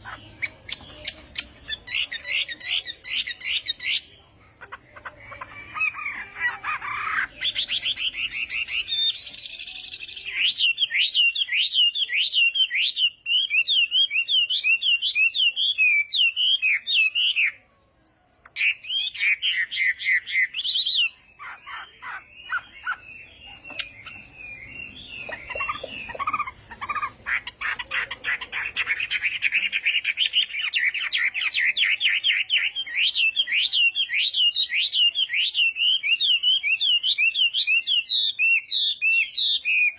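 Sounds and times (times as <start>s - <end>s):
bird singing whistled notes: 7.6s - 27.1s, 29.3s - 39.9s.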